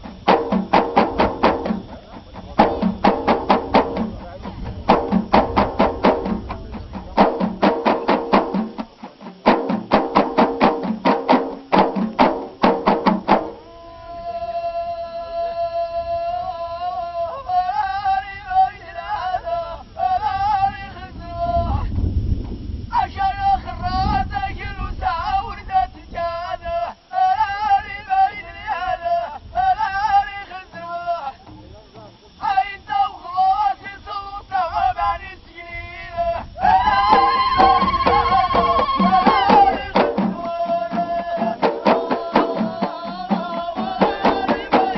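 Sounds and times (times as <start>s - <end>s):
frame drums beaten: 0.0s - 13.7s, 36.6s - 44.9s
group chanting high melody: 36.6s - 44.9s.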